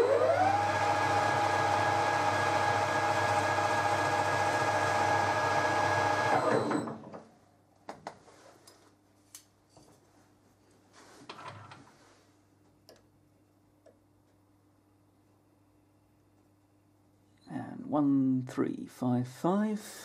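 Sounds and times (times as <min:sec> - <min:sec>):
lathe spindle whining: 0:00.0 - 0:07.1.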